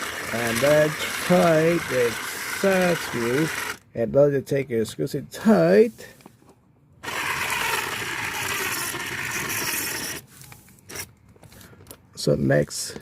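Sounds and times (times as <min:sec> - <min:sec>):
cordless screwdriver motor running: 0:00.0 - 0:03.8, 0:07.0 - 0:10.2.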